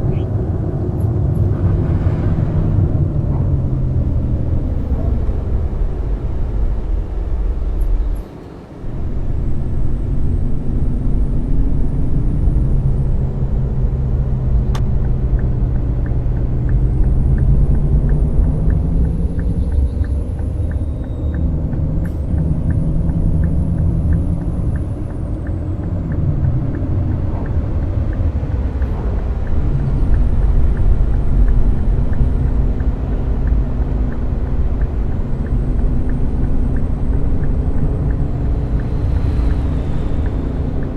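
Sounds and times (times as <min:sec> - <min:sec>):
coach engine and road rumble: 0:00.0 - 0:40.9
light ticking: 0:14.6 - 0:40.9.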